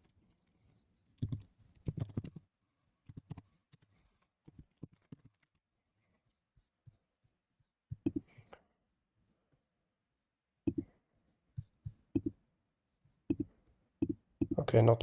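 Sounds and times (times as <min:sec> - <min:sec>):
computer keyboard typing: 0:01.2 - 0:02.4, 0:03.0 - 0:03.9.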